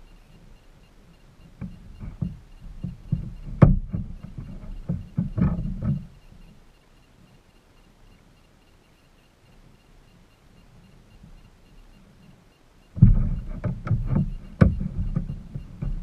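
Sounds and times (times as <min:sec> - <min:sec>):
hollow knocks and thumps: 0:01.5 - 0:06.2, 0:13.0 - 0:16.0.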